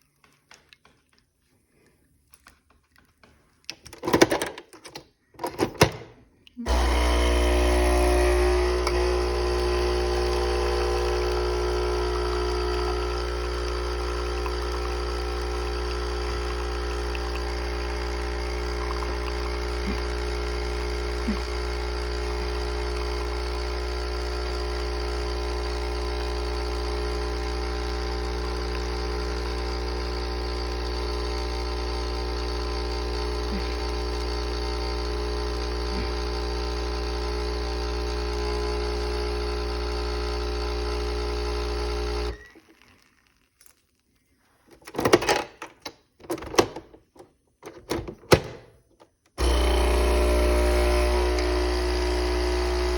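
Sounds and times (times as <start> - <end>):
espresso machine pump humming: 6.6 - 43.1, 49.4 - 52.9.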